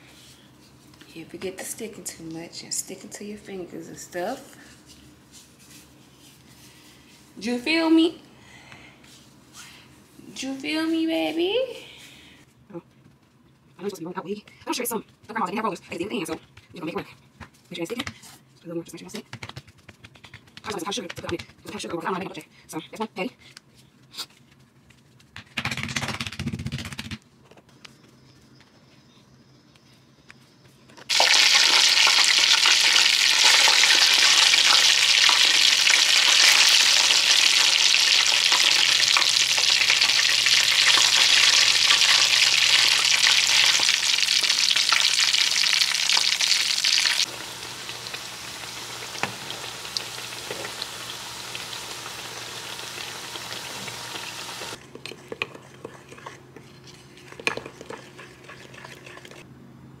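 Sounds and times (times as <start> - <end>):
dough sizzling in hot oil: 31.1 - 54.8.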